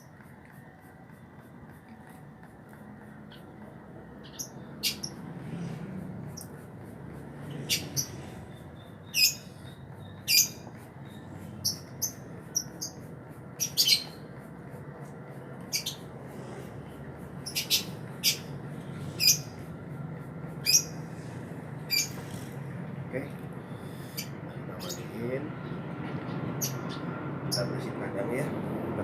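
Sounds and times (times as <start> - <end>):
steady low hum: 0.0 - 29.0
bird high-pitched calls: 4.2 - 5.2, 7.5 - 14.2, 15.7 - 16.1, 17.4 - 19.6, 20.6 - 22.6, 23.8 - 25.1.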